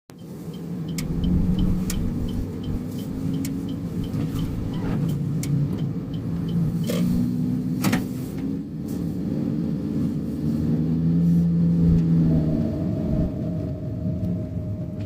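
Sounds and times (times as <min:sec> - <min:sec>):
road and engine rumble: 0:00.1 - 0:15.0
faint hum: 0:11.8 - 0:15.0.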